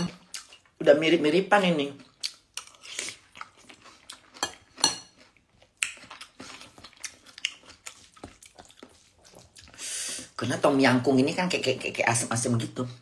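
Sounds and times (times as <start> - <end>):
person chewing: 0.0 - 0.8, 2.0 - 10.4.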